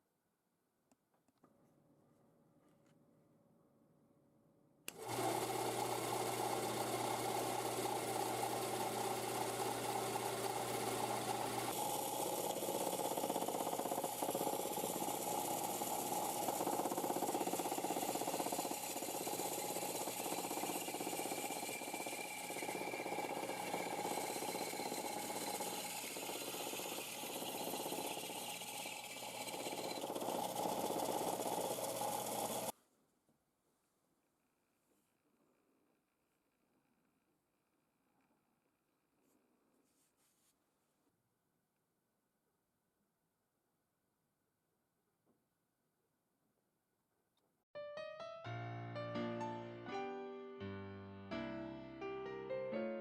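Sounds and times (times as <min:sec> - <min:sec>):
band saw running: 0:04.9 - 0:32.7.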